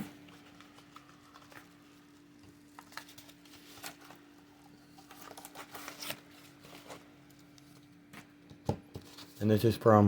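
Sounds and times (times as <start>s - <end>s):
package rustling and crinkling: 0.0s - 8.4s.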